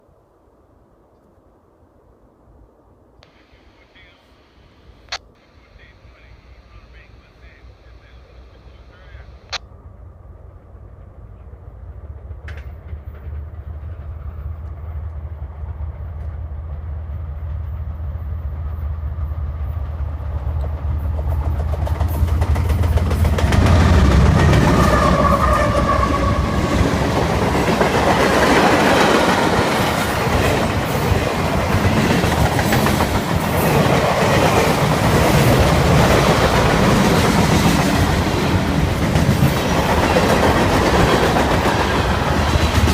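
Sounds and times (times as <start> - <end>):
diesel locomotive rumble: 3.3 - 42.9
train wheels on rails: 10.8 - 42.9.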